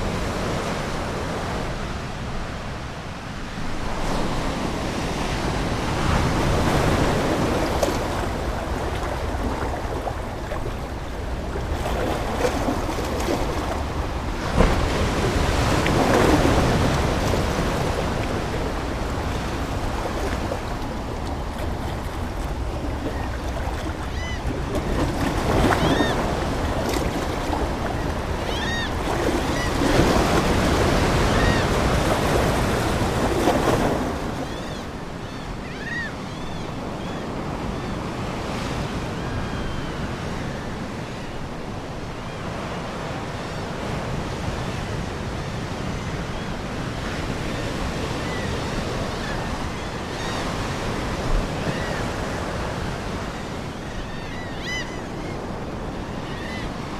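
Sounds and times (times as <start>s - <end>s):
ocean surf washing ashore: 0.0s - 56.9s
seagulls calling: 6.4s - 37.9s, 47.6s - 56.9s.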